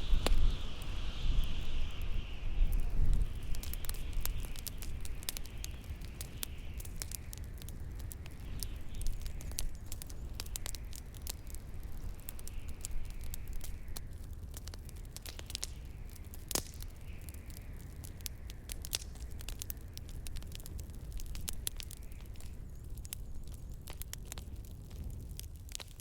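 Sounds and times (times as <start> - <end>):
hissing wash: 0.0 - 6.8
low wind rumble: 0.0 - 25.7
bonfire crackling and popping: 0.0 - 26.0.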